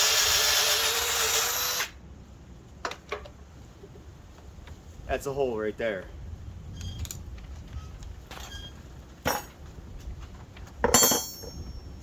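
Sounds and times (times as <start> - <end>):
equipment knocks and clinks: 10.8 - 11.9.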